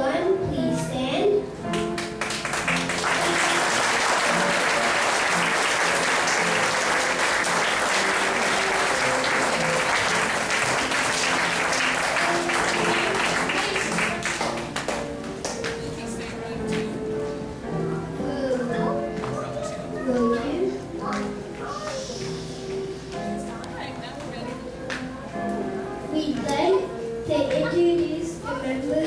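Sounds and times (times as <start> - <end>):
music: 0.0 - 29.0
audience applauding: 1.7 - 15.8.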